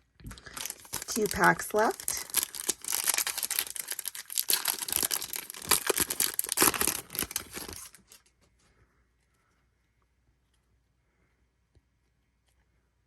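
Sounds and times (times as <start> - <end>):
wrapper tearing and crinkling: 0.3 - 8.3.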